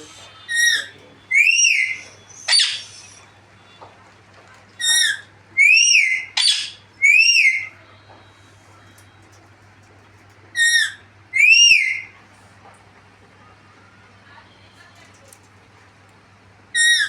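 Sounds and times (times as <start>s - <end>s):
parrot whistle-like calls: 0.4s - 3.3s, 4.8s - 7.8s, 10.6s - 12.1s, 16.7s - 17.0s
parrot screech: 0.5s - 3.2s, 16.8s - 17.0s.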